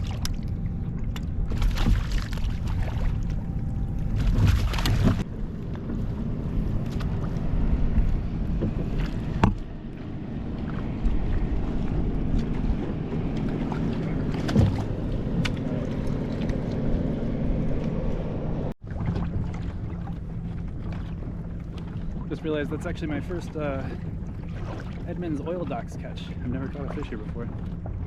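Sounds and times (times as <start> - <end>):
water moving around kayak hull: 0.0 - 28.0
sharp knocks against boat: 4.2 - 5.2, 8.0 - 9.8, 13.3 - 16.8.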